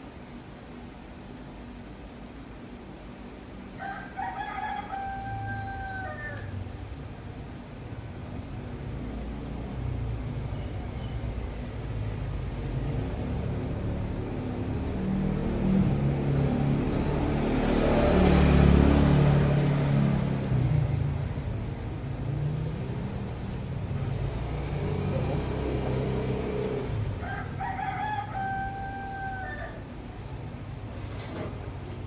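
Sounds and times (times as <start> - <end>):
rooster crowing: 3.8 - 6.6, 27.1 - 29.9
vehicle passing with low rumble: 4.2 - 32.0.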